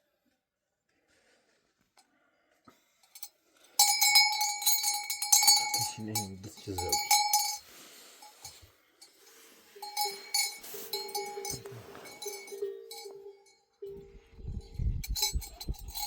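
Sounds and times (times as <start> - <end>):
livestock bells clanking: 3.1 - 8.6, 9.2 - 16.0.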